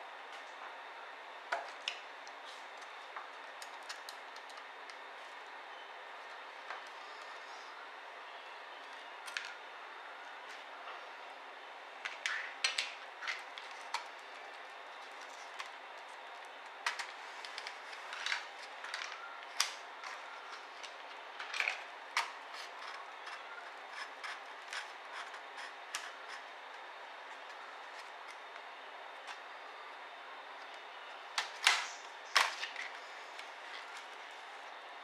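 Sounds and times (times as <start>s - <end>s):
laptop parts clicking and scraping: 3.6s - 4.7s, 16.9s - 26.5s.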